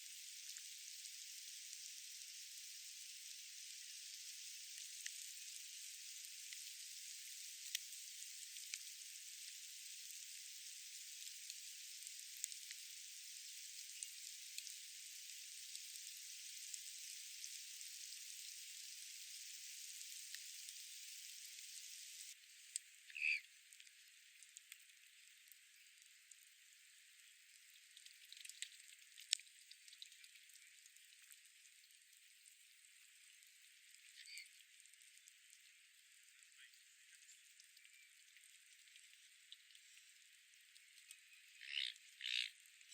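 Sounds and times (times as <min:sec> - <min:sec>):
steady hiss: 0:00.0 - 0:23.4.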